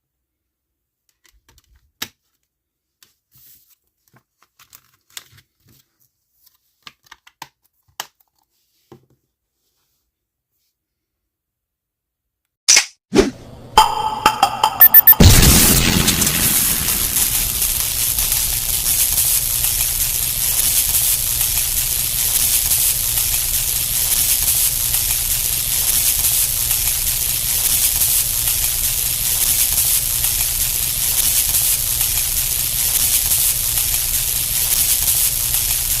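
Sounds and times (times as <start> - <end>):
steady hiss: 15.2 - 36.0.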